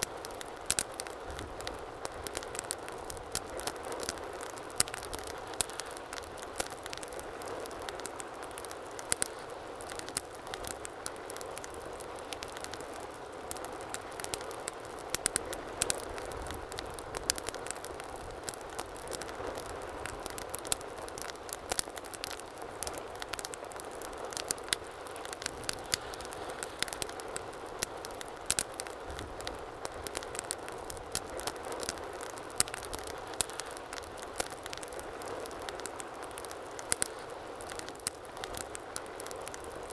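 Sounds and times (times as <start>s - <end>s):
fire crackling and popping: 0.0s - 39.9s
hiss of flames: 21.6s - 39.9s.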